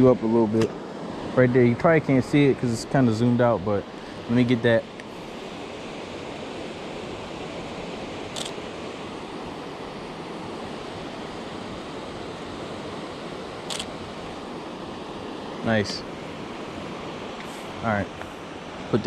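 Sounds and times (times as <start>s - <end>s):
camera shutter clicks: 8.3s - 8.6s, 13.6s - 14.0s.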